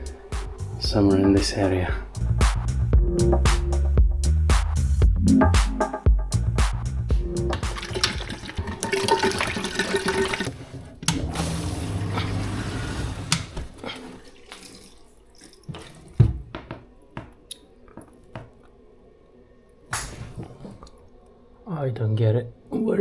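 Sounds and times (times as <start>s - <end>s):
water running from a tap: 7.5s - 10.6s, 11.9s - 16.2s.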